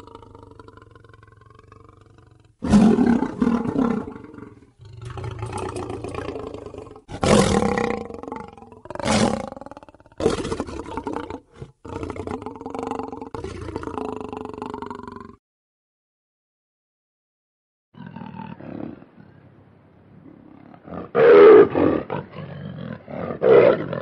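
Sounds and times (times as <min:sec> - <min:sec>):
lion growling: 0:00.0 - 0:15.4, 0:20.3 - 0:24.0
lion roaring: 0:00.0 - 0:15.4, 0:20.4 - 0:24.0.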